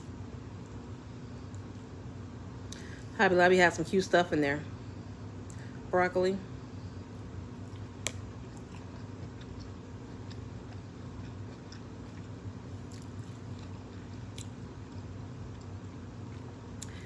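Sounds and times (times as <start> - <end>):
steady low hum: 0.0 - 17.0
chewing broccoli: 7.5 - 17.0.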